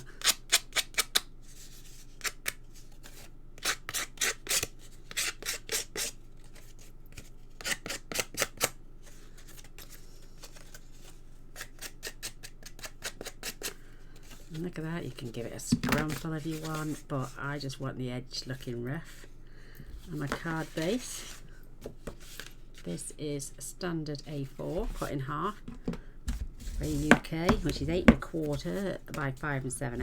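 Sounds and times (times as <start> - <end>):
scissor blade scraping cardstock: 0.1 - 1.3, 2.0 - 8.8, 9.6 - 13.8.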